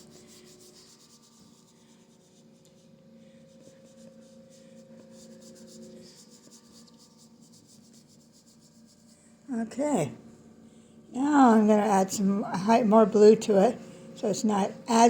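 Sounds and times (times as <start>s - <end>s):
paintbrush rubbing on canvas: 0.0s - 3.0s, 3.6s - 9.2s.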